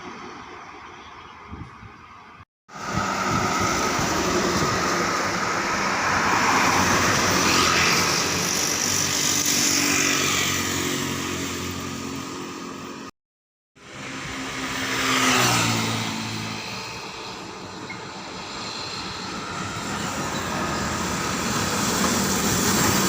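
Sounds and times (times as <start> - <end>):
road and tyre noise: 0.0 - 13.1, 13.8 - 23.0
truck engine passing: 2.7 - 13.1.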